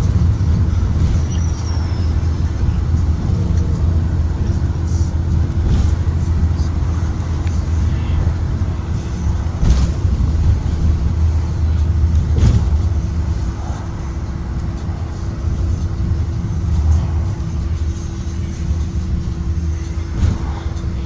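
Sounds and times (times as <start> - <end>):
knocks or rattles: 0.0 - 17.6
bus engine and road rumble: 0.0 - 21.0.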